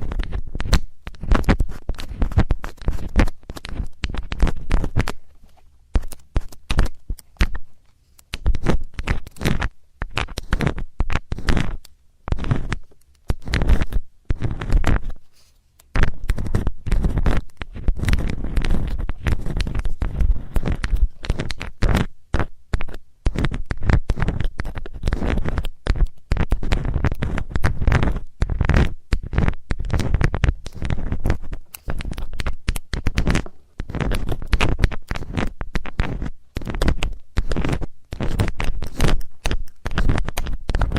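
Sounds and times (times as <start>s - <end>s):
metal tool scraping microphone: 8.4s - 22.1s, 33.0s - 40.9s.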